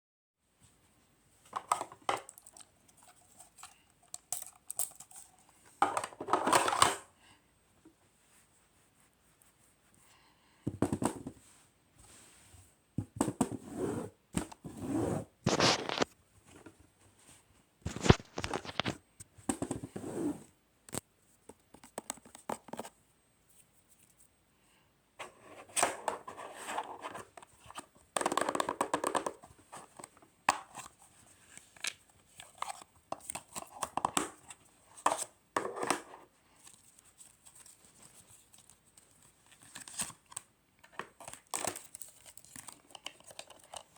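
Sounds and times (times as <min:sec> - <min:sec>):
wrapping paper crinkling and tearing: 0:15.5 - 0:16.1, 0:17.9 - 0:18.9.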